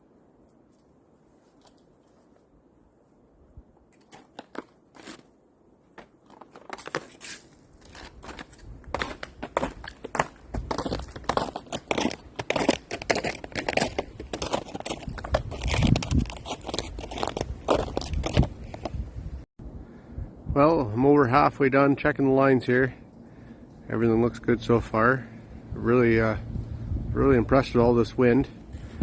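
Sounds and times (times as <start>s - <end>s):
crunching footsteps: 4.0s - 5.3s, 5.9s - 19.1s
wind rumble on microphone: 13.7s - 21.0s, 24.3s - 29.0s.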